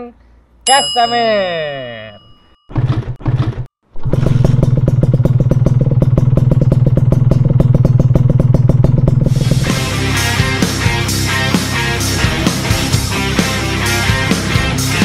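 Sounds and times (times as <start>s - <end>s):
motorcycle engine running: 2.7s - 11.6s.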